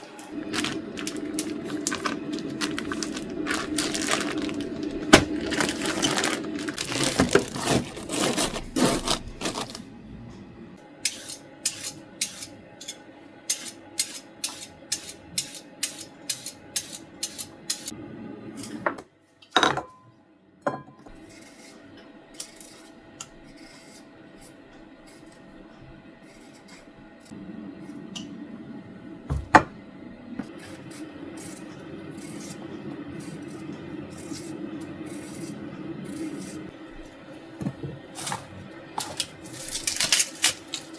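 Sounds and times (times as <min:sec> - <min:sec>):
rubbing or scraping sound: 0:00.0 - 0:09.9.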